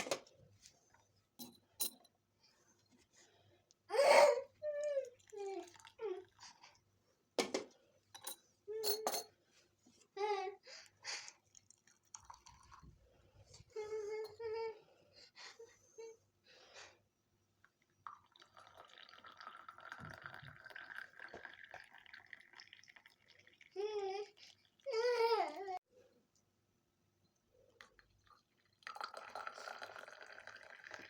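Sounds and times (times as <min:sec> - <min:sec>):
child babbling: 0:03.9 - 0:06.3, 0:23.8 - 0:25.8.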